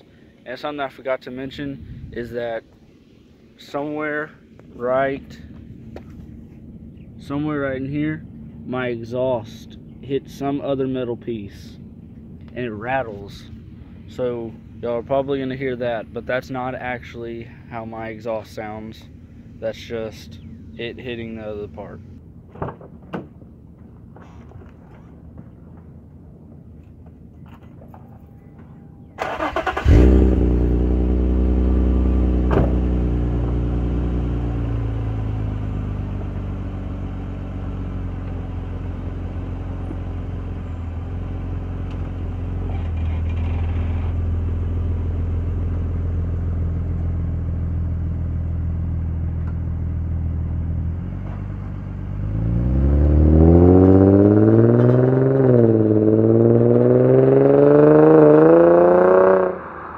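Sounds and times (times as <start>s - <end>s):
car engine starting and idling: 0.0s - 59.9s
car engine revving: 29.2s - 44.9s, 49.4s - 59.9s.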